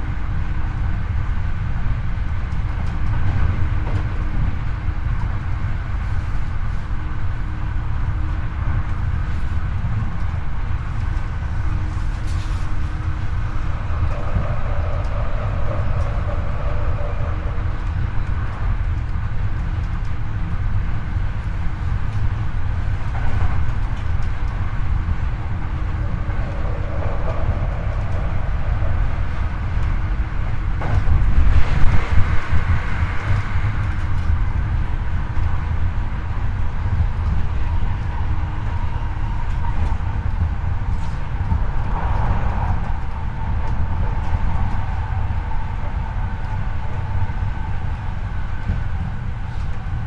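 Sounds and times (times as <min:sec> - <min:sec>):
train wheels rumbling on rail: 0:00.0 - 0:50.0
faint steady whine: 0:10.4 - 0:19.5.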